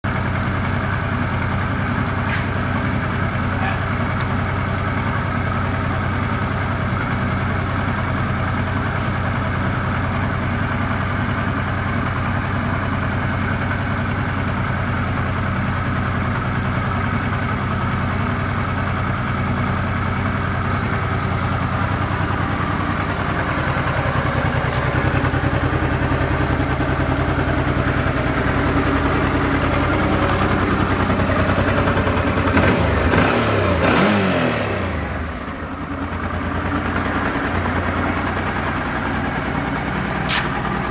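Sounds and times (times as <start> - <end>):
motorcycle engine idling: 0.0 - 40.9
motorcycle engine revving: 19.8 - 40.9.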